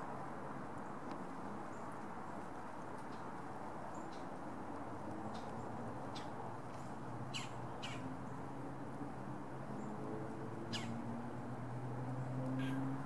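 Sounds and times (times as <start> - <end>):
sharp downward bird calls: 10.7 - 11.0.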